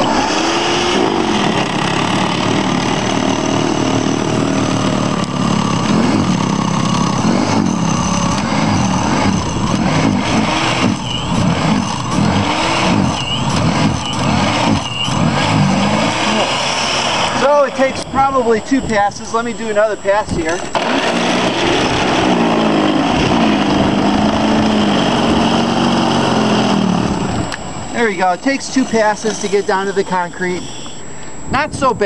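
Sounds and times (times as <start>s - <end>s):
electric snowblower motor whining: 0.0s - 17.9s, 20.5s - 27.9s.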